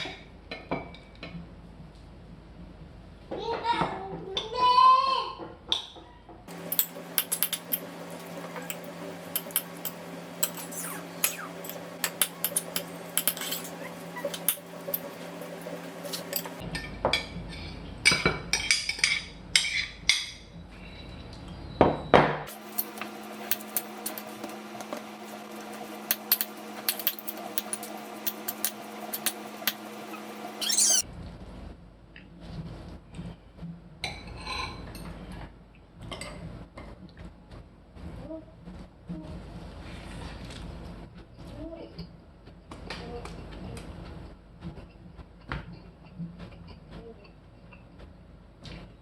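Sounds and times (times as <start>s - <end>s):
steady low hum: 6.5s - 16.6s, 22.5s - 31.0s
dishes and cutlery clinking: 6.5s - 20.3s, 22.5s - 31.0s.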